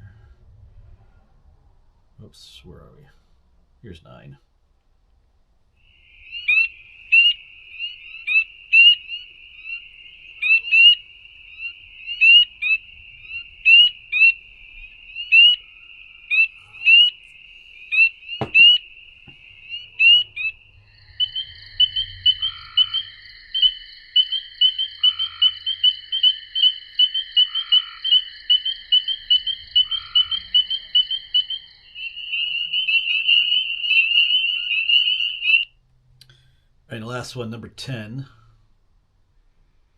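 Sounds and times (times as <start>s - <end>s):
frog trill: 5.8s - 35.7s
frogs calling: 5.8s - 36.5s.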